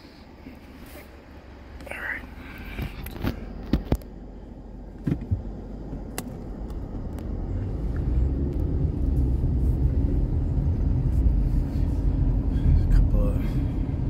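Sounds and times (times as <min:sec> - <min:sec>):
car engine and road rumble: 0:00.0 - 0:14.0
sharp clicks and knocks: 0:05.0 - 0:07.3.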